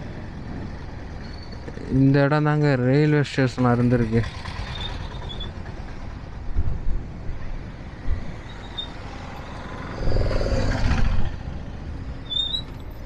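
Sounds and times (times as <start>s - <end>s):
traffic engines rumbling: 0.0s - 13.0s
vehicle passing close: 7.8s - 12.2s.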